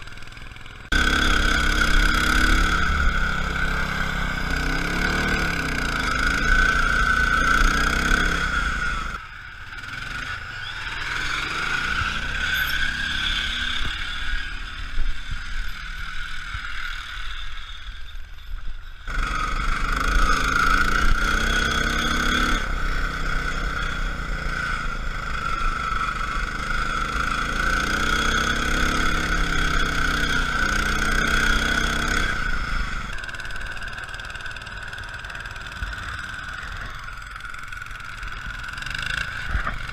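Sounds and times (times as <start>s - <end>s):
lawn tractor engine revving: 0.5s - 9.2s, 19.1s - 36.8s.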